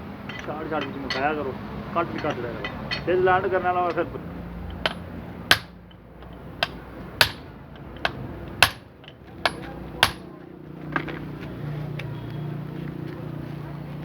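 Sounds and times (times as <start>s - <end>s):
hammer striking metal: 0.2s - 10.3s.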